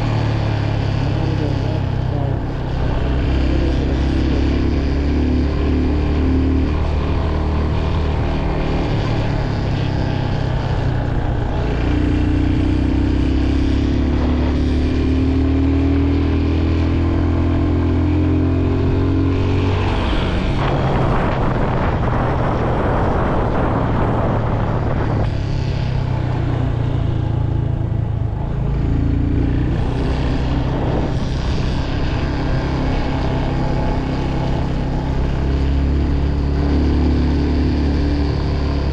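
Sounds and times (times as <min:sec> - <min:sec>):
motorcycle engine running: 0:00.0 - 0:38.9
rushing noise: 0:19.1 - 0:38.9.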